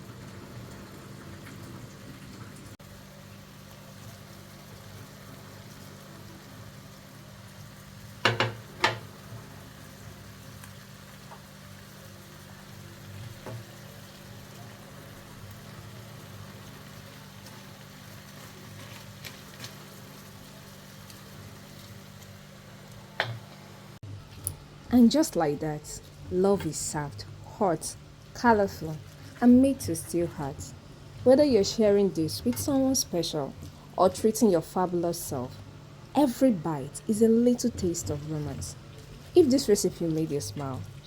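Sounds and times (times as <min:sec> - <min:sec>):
sauce sizzling in a pan: 0:00.0 - 0:23.5.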